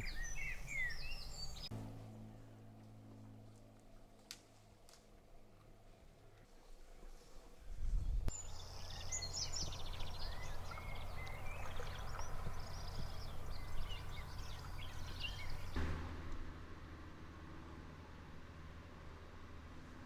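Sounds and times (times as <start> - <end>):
birds chirping and trilling: 0.0 - 1.7, 8.0 - 15.8
low steady rumble: 0.0 - 20.0.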